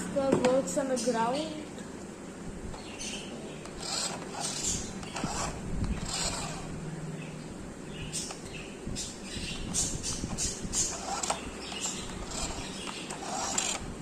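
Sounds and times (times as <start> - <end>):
toy car motor whirring: 3.6 - 6.8, 10.1 - 14.0.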